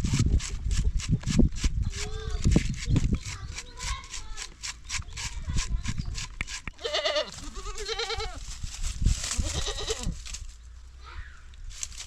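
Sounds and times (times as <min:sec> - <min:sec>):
goat bleating: 0:06.8 - 0:08.4, 0:09.3 - 0:10.2.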